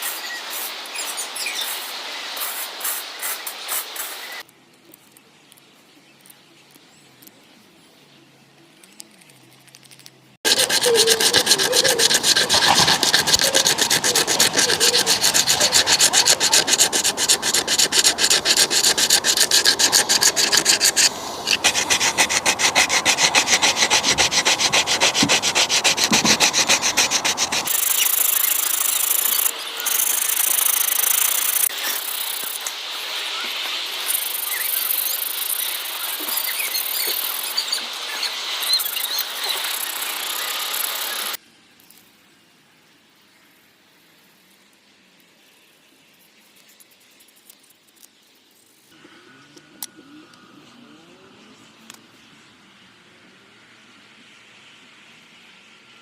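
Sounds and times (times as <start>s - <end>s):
abrasive strokes on wood: 10.4s - 41.4s.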